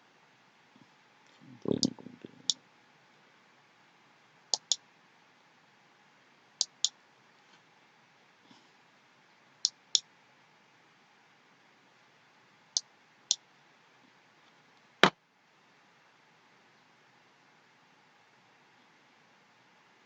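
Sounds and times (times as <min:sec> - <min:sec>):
faint steady hiss: 0:00.0 - 0:20.0
computer mouse clicking: 0:04.6 - 0:04.8, 0:06.6 - 0:06.9.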